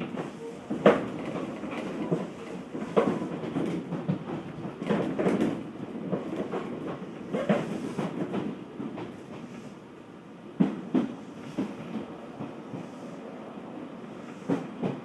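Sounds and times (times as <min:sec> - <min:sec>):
train rolling rumble: 0:00.0 - 0:15.0.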